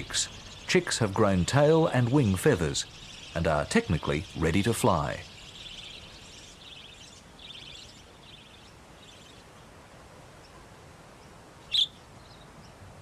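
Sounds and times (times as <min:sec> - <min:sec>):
budgerigars chattering: 0:00.0 - 0:09.4
faint background hiss: 0:00.0 - 0:13.0.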